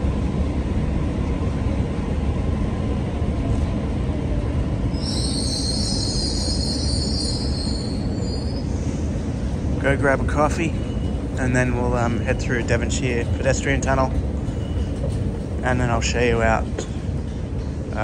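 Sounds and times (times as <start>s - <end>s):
train rumbling: 0.0s - 18.0s
train wheels squealing: 4.9s - 9.5s, 10.5s - 11.3s, 14.4s - 15.4s.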